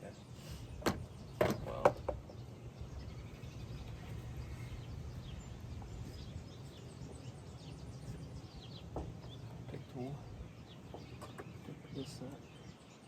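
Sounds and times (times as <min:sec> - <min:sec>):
faint bird chirps: 0:00.0 - 0:13.0
low background hum: 0:00.0 - 0:13.0.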